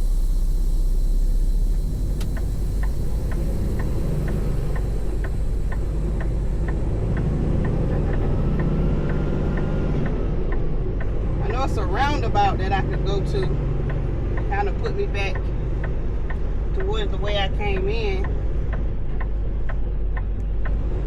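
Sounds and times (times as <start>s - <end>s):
truck engine rumbling in cab: 0.0s - 21.0s
turn signal ticking: 0.0s - 21.0s
click: 2.0s - 11.2s.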